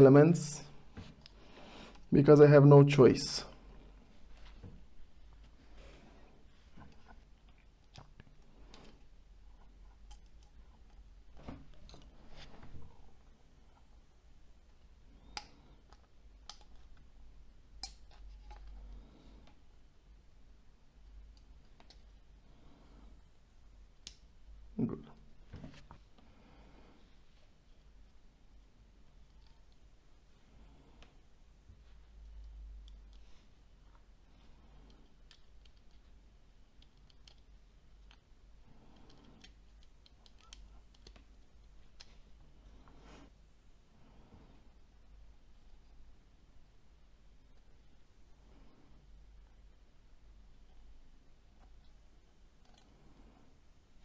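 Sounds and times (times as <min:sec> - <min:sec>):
small plastic parts clicking: 0:34.8 - 0:42.2.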